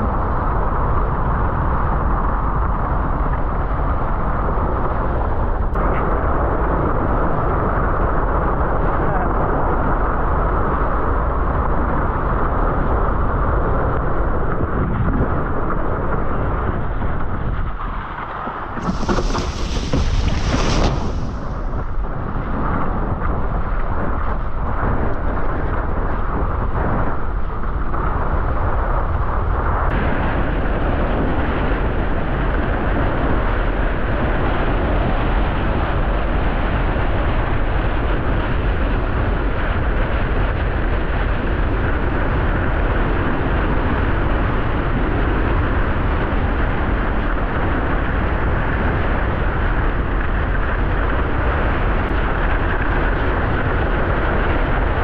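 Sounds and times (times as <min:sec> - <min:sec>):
wind roaring over microphone: 0:00.0 - 0:55.0
water rushing under board: 0:14.8 - 0:34.9.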